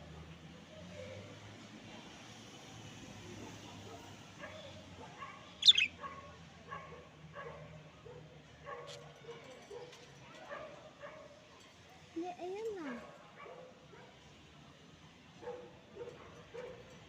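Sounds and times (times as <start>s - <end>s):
high chirp: 5.6s - 5.9s
short animal calls: 5.6s - 5.9s.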